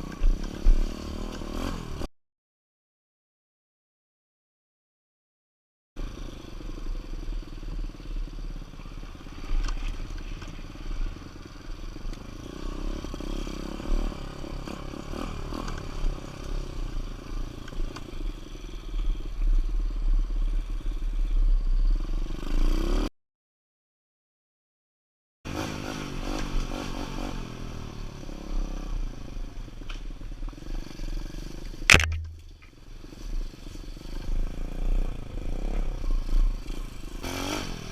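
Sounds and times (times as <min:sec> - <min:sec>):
dirt bike engine revving: 0:00.0 - 0:02.1, 0:36.3 - 0:37.9.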